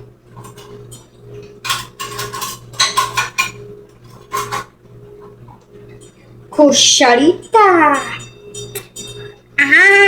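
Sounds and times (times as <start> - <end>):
low steady hum: 0.0 - 10.0
metal cutlery clattering: 1.6 - 4.7.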